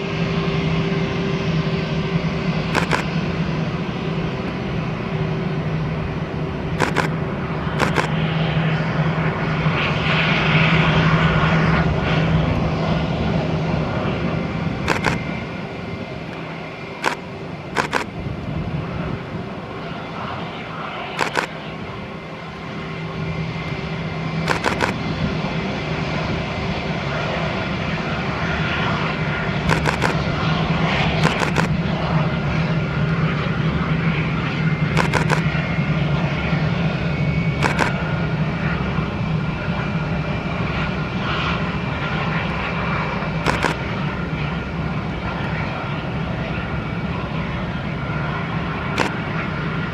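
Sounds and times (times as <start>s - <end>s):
jet engines rumbling and whining: 0.0s - 49.9s
short sharp clicks: 2.8s - 3.1s, 6.8s - 7.2s, 7.8s - 8.1s, 14.9s - 15.2s, 17.8s - 18.1s, 21.2s - 21.5s, 24.5s - 25.0s, 29.7s - 30.2s, 31.2s - 31.7s, 35.0s - 35.5s, 37.6s - 38.0s, 43.5s - 43.8s.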